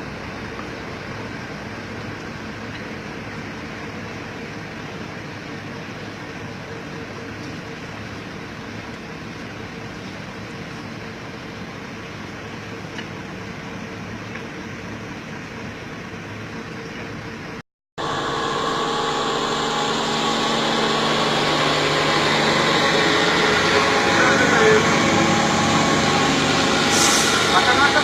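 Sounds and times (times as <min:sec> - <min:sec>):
truck diesel engine droning: 0:18.0 - 0:28.0.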